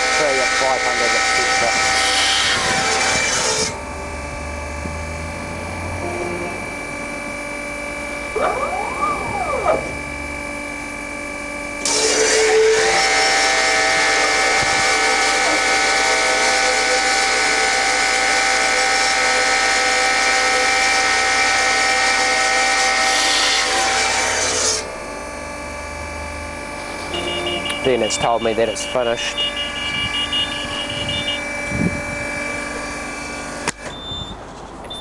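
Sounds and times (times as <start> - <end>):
blade sawing through wood: 0.0 - 3.8, 11.8 - 25.0
bandsaw humming: 0.0 - 33.9
machine whine gliding: 0.0 - 34.0.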